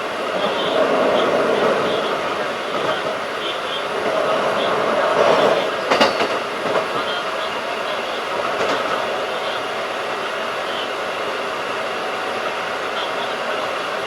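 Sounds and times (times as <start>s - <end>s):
electric train rolling at speed: 0.0s - 14.0s
wheels knocking over rail joints: 5.1s - 7.0s.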